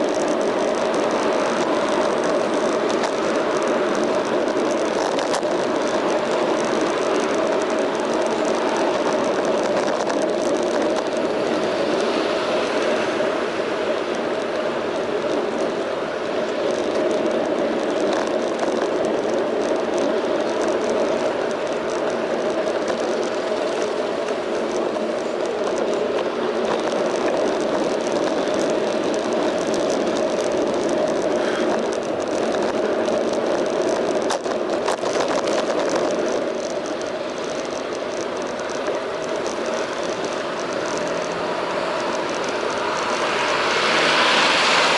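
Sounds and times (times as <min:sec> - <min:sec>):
traffic: 0:00.0 - 0:44.9
wind and tyre noise: 0:00.0 - 0:44.9
faint clicks: 0:14.1 - 0:41.4.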